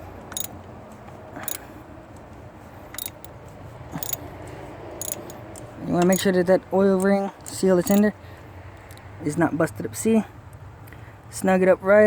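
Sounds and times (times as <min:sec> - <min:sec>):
ratchet clicking: 0:00.2 - 0:00.6, 0:03.0 - 0:03.3, 0:04.0 - 0:04.2, 0:05.0 - 0:06.3, 0:07.8 - 0:08.1.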